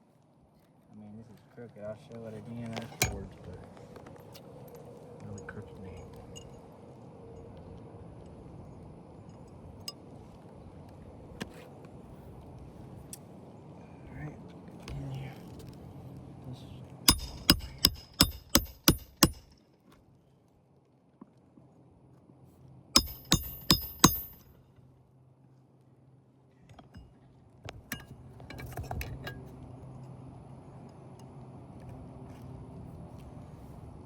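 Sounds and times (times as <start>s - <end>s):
faint taps and scraping: 0.6s - 6.6s
hammer striking roofing nails: 17.1s - 19.5s, 23.0s - 24.5s.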